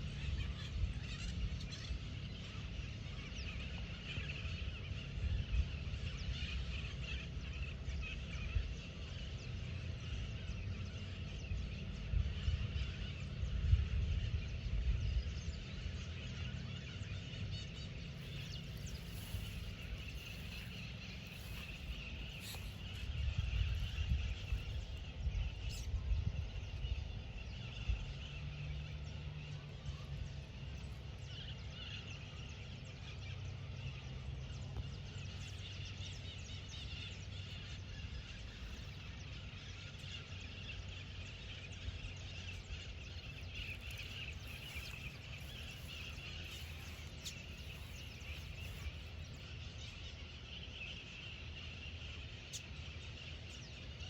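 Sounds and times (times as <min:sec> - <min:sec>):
birds chirping: 0:16.8 - 0:29.5, 0:30.1 - 0:54.0.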